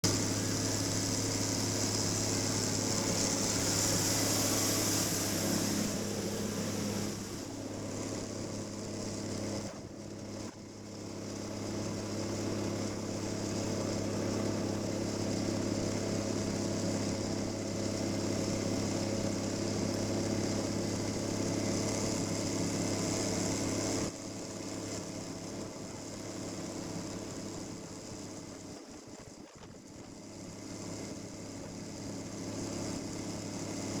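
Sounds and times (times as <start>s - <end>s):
snowmobile engine humming: 0.0s - 10.3s.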